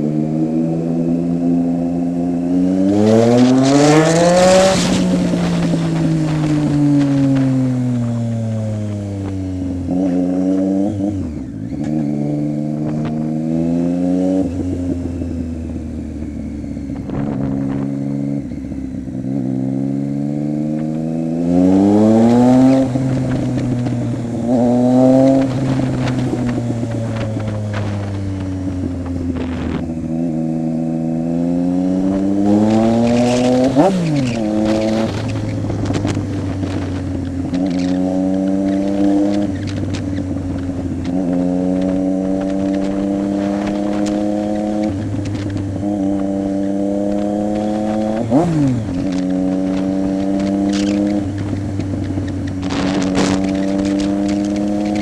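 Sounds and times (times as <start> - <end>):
motorcycle engine accelerating: 0.0 - 55.0
sharp engine rev: 2.7 - 6.4.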